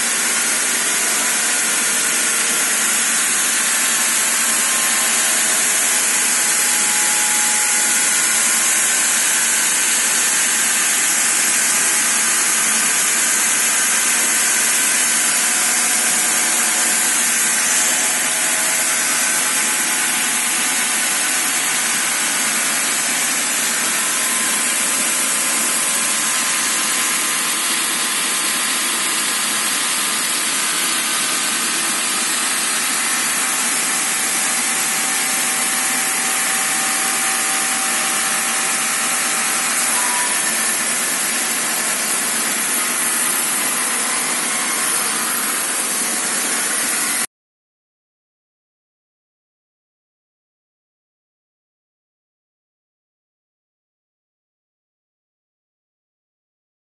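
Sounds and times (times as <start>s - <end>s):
sawmill blade cutting wood: 0.0s - 47.3s.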